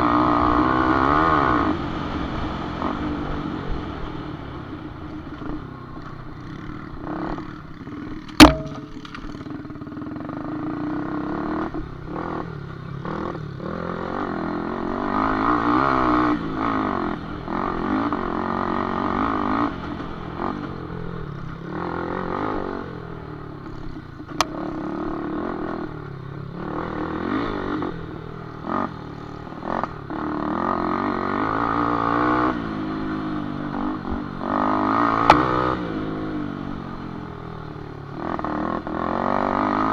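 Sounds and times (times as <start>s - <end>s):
motorcycle engines revving: 0.0s - 39.9s
sharp knock: 8.4s - 9.4s.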